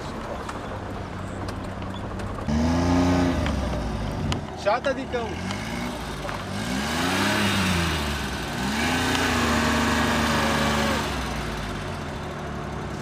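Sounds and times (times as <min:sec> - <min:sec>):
car engine revving hard: 0:02.5 - 0:04.4, 0:05.1 - 0:13.0.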